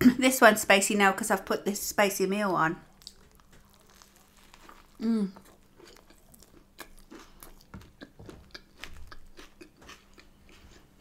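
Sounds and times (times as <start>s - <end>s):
person chewing with crunching: 2.9s - 11.0s.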